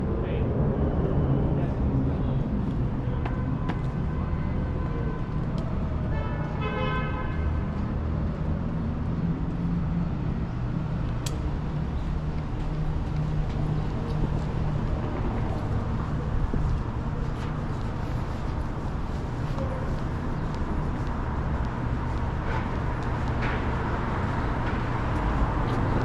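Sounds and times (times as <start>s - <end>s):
street traffic rumbling: 0.0s - 26.0s
car horn: 6.1s - 7.5s.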